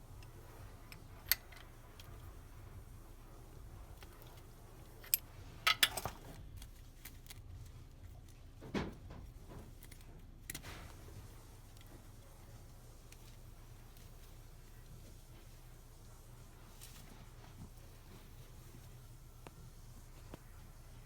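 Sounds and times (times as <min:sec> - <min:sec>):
metallic clicks and clinks of tools: 0:04.2 - 0:07.4.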